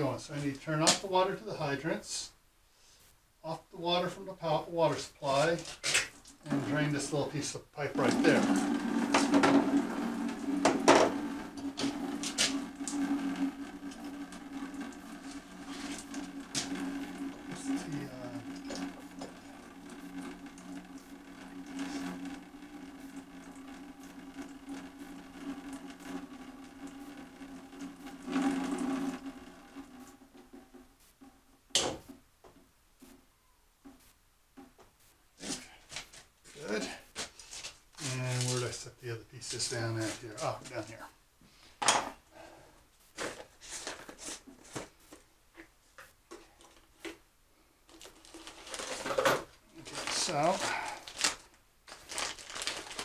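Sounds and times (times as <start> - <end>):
steady low hum: 0.0 - 41.4.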